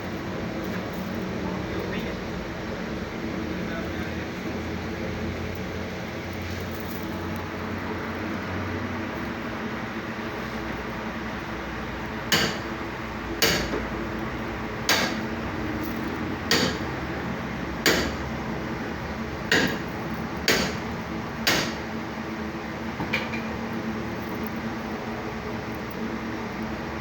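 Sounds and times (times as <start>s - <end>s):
background hum and hiss: 0.0s - 27.0s
sharp knocks: 12.3s - 12.7s, 13.4s - 13.8s, 14.9s - 15.2s, 16.5s - 16.8s, 17.8s - 18.2s, 19.5s - 19.8s, 20.5s - 20.8s, 21.5s - 21.8s.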